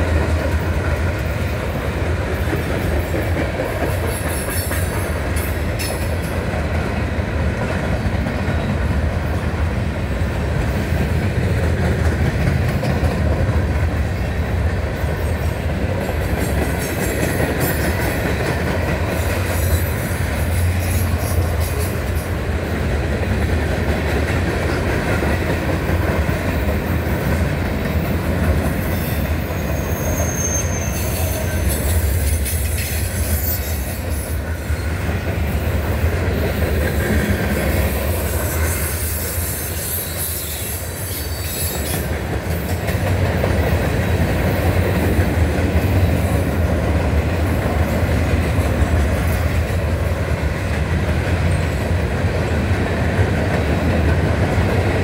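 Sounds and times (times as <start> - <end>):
wheels clacking over rail joints: 0.0 - 9.4, 10.5 - 55.0
freight train cars rolling: 0.0 - 55.0
high-pitched wheel squeal: 29.0 - 32.0.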